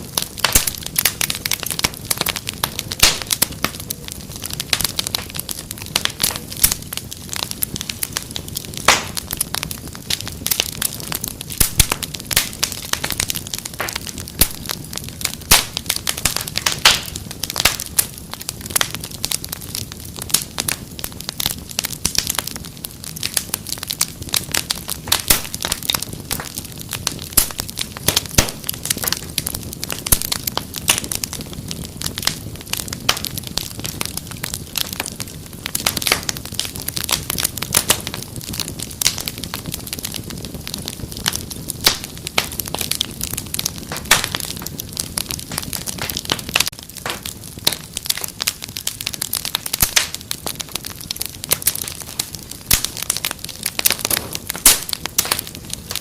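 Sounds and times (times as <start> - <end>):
low rumble of flames: 0.0 - 56.0
wood fire popping and snapping: 0.0 - 56.0.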